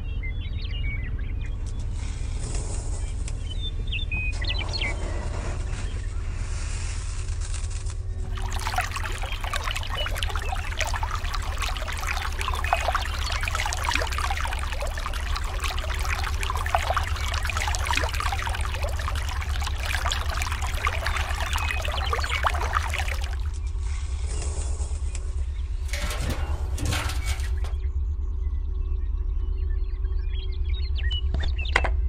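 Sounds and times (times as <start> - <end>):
water trickling and splashing: 8.2 - 23.6, 25.8 - 27.8
low hum: 8.3 - 23.6.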